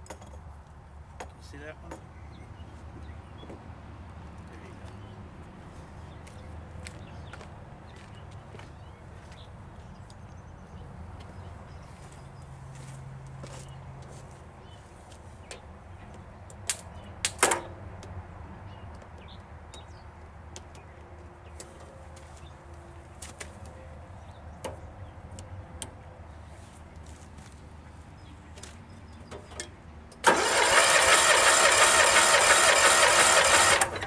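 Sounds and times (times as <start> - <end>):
starter cranking engine: 30.2 - 34.0.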